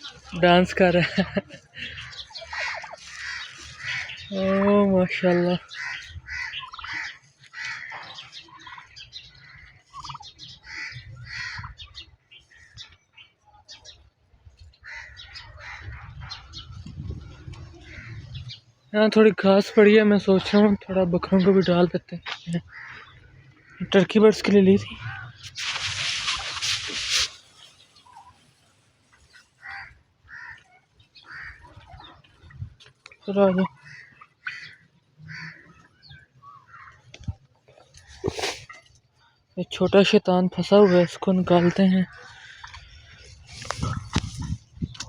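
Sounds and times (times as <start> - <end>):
dry grass rustling: 0.0 - 11.7, 22.3 - 34.7, 37.8 - 38.9, 42.4 - 45.0
birds chirping and calling: 0.0 - 45.0
fowl calling: 1.0 - 11.9, 22.6 - 24.0, 24.8 - 28.6, 29.2 - 32.2, 33.6 - 37.1.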